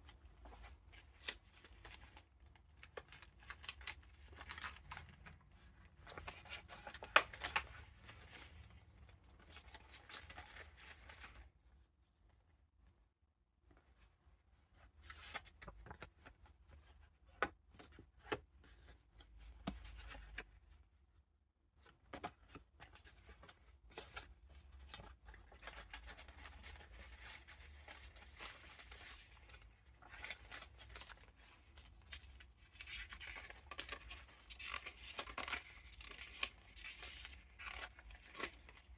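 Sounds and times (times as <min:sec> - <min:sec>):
paper rustling and crinkling: 0:00.0 - 0:11.5, 0:22.0 - 0:38.9.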